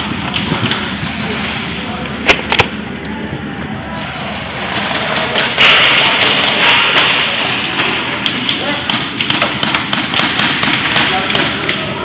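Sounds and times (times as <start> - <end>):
loud rush of noise: 0.0 - 12.0
airsoft guns firing: 8.9 - 11.8.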